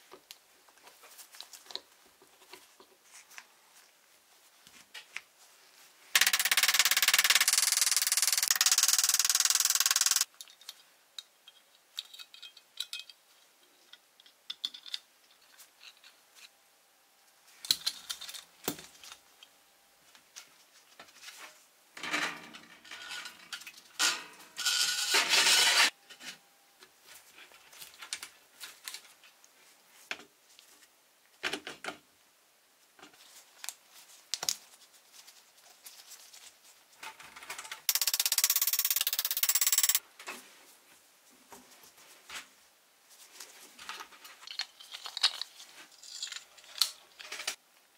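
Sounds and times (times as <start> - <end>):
metal toy parts clicking: 6.2 - 13.2, 13.9 - 16.2, 37.9 - 40.0, 44.4 - 47.6.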